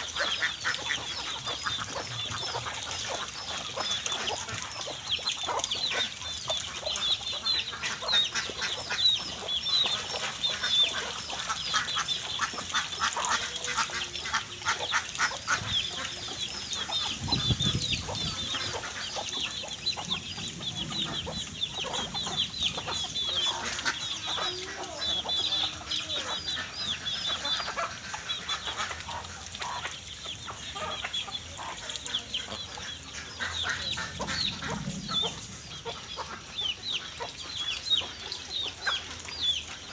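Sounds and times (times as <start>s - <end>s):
clicking and dabbling noises: 0.0s - 39.9s
ducks calling: 0.0s - 39.9s.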